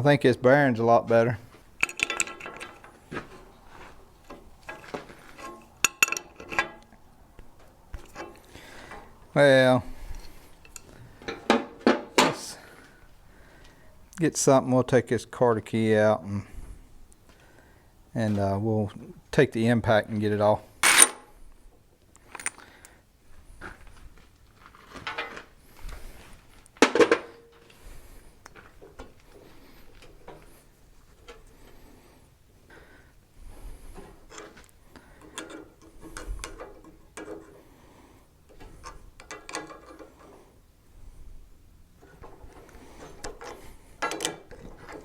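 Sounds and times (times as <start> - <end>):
tools and metal parts clinking: 1.8 - 3.5, 4.2 - 6.9, 8.0 - 9.0, 10.6 - 12.0, 20.8 - 21.3, 22.2 - 22.7, 25.0 - 25.4, 34.3 - 37.6, 38.5 - 40.4, 42.0 - 45.0
sharp metal clank: 20.8 - 21.3.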